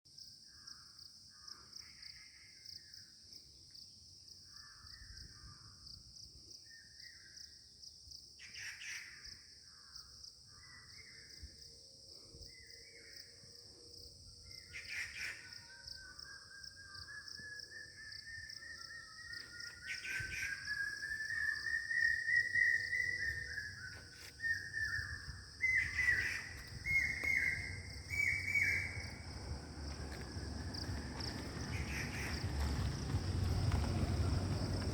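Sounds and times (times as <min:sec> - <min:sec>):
bird cawing: 0:31.1 - 0:32.5.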